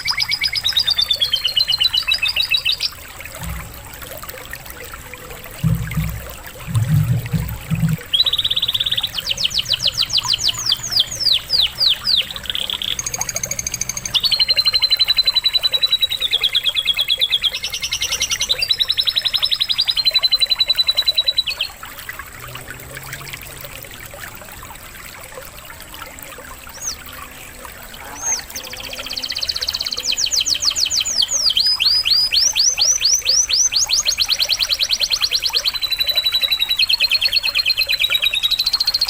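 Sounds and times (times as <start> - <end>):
water trickling: 0.0 - 39.0
canary singing: 6.9 - 21.8, 27.9 - 39.0.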